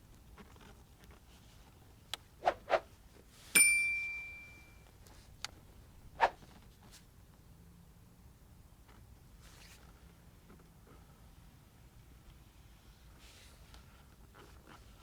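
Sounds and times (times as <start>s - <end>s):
bright metallic ding: 3.6s - 4.8s.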